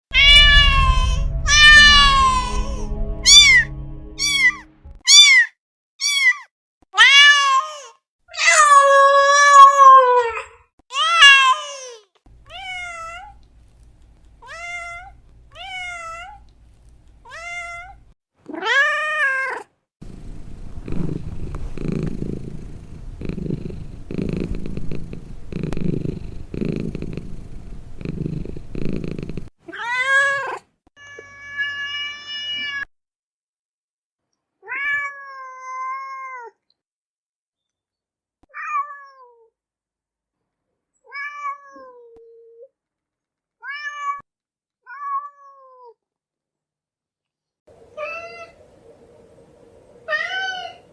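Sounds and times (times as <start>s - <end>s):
cats meowing: 0.2s - 2.6s
cat purring: 20.0s - 29.5s.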